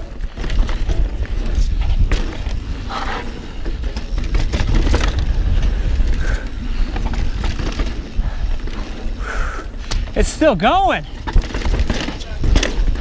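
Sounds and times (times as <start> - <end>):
tyres rolling on dirt: 0.0 - 9.2, 9.8 - 13.0
wind rumble on microphone: 0.0 - 10.1
bike rattling: 0.0 - 13.0
bike knocks over bumps: 11.2 - 13.0.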